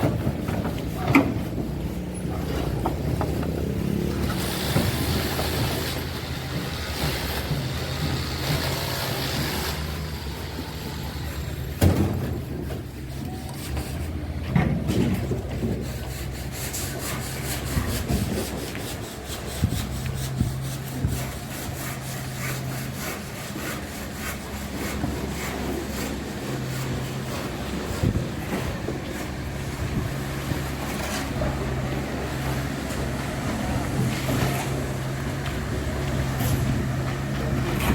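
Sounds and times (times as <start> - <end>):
bucket scraping and knocking: 0.0 - 9.5
excavator diesel engine running: 0.0 - 16.1, 17.2 - 37.9.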